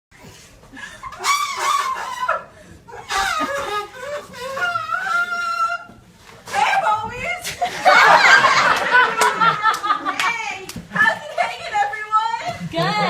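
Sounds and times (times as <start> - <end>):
people laughing and squealing: 0.8 - 5.9, 6.5 - 11.6.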